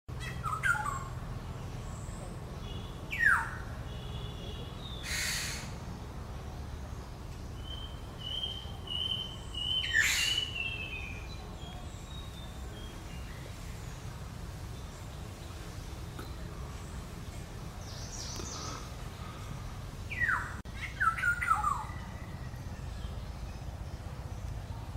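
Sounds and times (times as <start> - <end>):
harsh rasping squawk: 5.0 - 5.8
oriole downward-sweeping call: 7.8 - 11.2.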